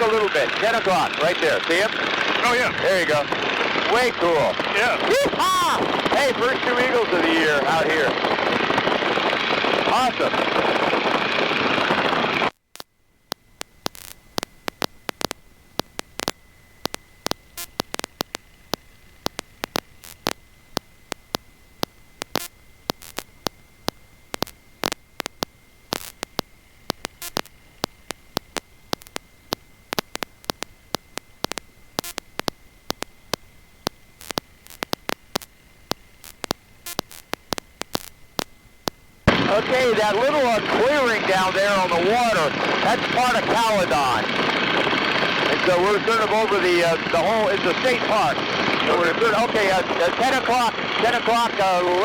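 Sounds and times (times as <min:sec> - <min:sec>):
faint electrical hiss: 0:00.0 - 0:52.0
high-pitched whine: 0:00.0 - 0:52.0
loud cockpit sound: 0:00.0 - 0:52.0
sharp static crackles: 0:00.0 - 0:52.0.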